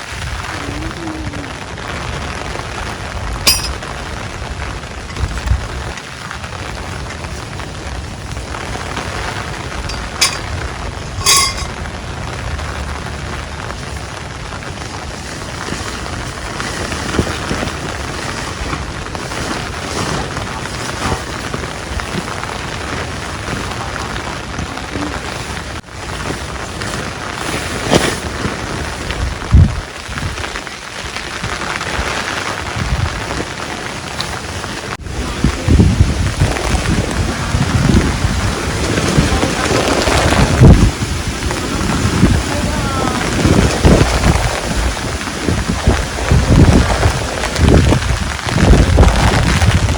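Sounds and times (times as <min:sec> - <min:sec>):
steady rain: 0:00.0 - 0:49.9
sharp clinks: 0:03.5 - 0:03.8, 0:09.9 - 0:10.5, 0:11.2 - 0:11.7.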